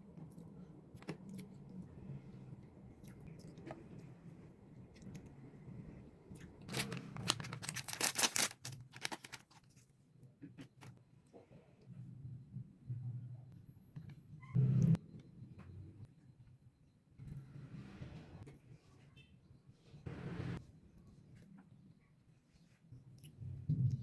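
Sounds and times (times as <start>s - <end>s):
wrapper crinkling and tearing: 6.7s - 9.8s.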